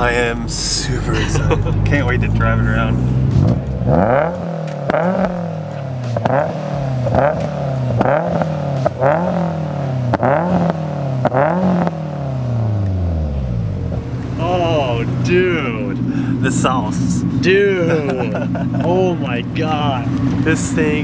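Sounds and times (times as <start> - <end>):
car engine revving: 0.0 - 21.0
exhaust pops: 1.6 - 12.0.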